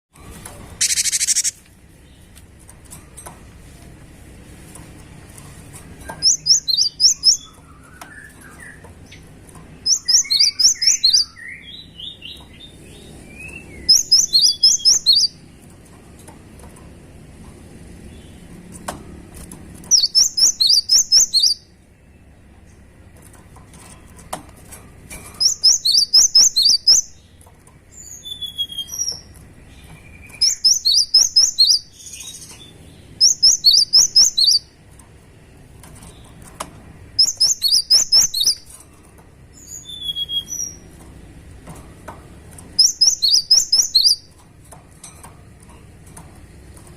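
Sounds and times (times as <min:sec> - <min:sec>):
bird singing rapid high notes: 0:00.8 - 0:01.6, 0:06.2 - 0:09.2, 0:09.8 - 0:15.4, 0:19.9 - 0:21.7, 0:25.4 - 0:27.4, 0:28.0 - 0:34.8, 0:37.2 - 0:38.7, 0:39.6 - 0:40.9, 0:42.8 - 0:44.4.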